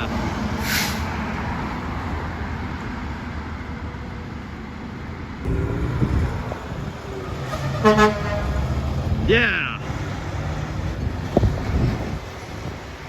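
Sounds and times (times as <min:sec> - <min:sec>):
truck passing: 0:00.0 - 0:13.0
vehicle engine approaching: 0:05.4 - 0:13.0.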